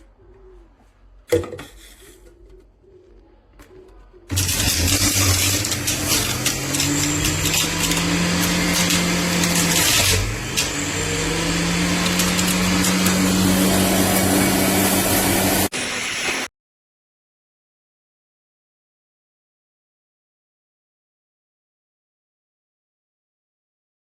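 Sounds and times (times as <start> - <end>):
juicer motor running: 4.3 - 16.4.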